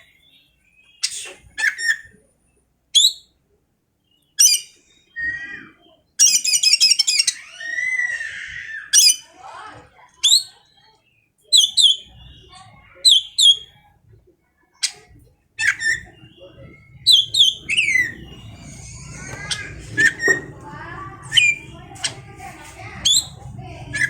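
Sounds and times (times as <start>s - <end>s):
bird whistling: 3.0s - 3.3s, 15.6s - 20.5s, 23.0s - 23.4s
bird rattling trill and warble: 14.8s - 24.0s.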